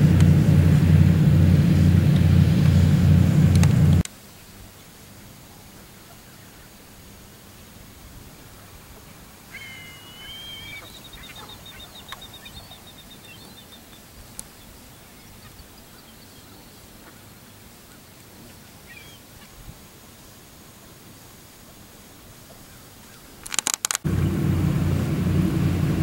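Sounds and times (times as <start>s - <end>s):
steady background hiss: 0.0s - 26.0s
bird calling: 9.5s - 17.3s, 18.8s - 19.6s
sharp clicks: 23.4s - 24.1s.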